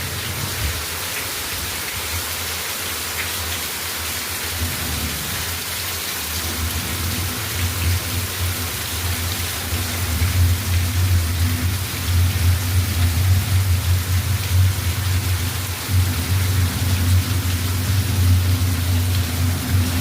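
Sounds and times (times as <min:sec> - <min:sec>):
heavy rain pouring: 0:00.0 - 0:20.0
low rumble: 0:09.8 - 0:20.0.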